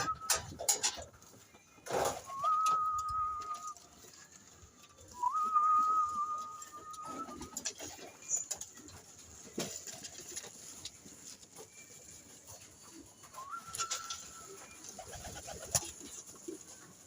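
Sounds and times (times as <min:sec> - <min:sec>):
long steady whistles: 0:02.3 - 0:03.8.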